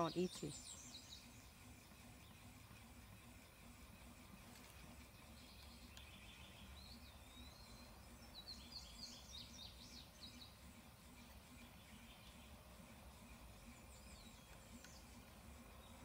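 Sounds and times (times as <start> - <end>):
small bird singing: 0.0 - 2.7, 4.5 - 16.0.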